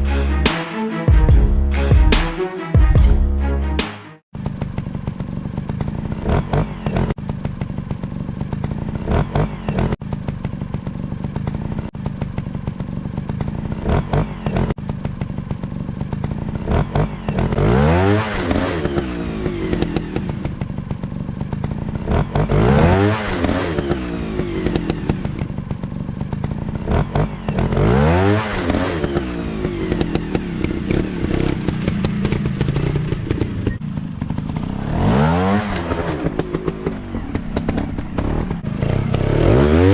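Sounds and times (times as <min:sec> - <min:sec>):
dirt bike engines running: 0:04.4 - 0:39.9
dirt bike revving past: 0:34.5 - 0:39.9.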